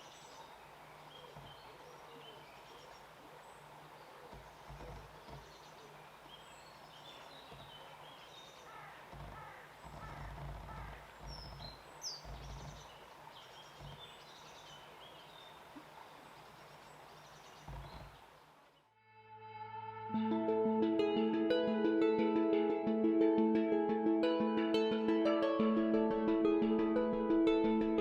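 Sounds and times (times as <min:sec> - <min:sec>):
small birds chirping: 0:00.0 - 0:18.9
low outdoor hiss: 0:00.0 - 0:20.4.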